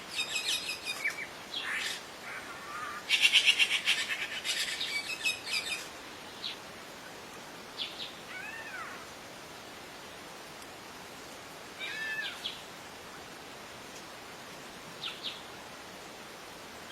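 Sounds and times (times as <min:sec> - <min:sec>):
steady hiss: 0:00.0 - 0:16.9
birds singing and chirping: 0:00.1 - 0:06.6.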